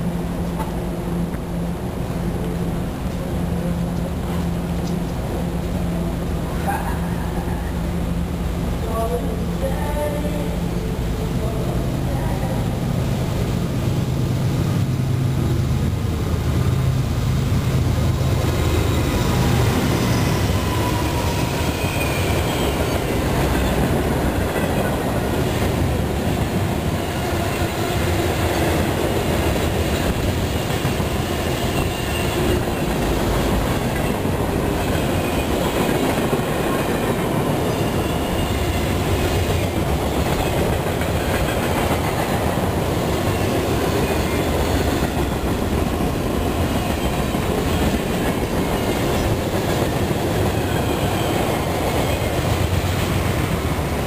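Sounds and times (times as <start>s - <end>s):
train wheels rumbling on rails: 0.0s - 54.0s
faint high wheel squeal: 19.9s - 22.9s.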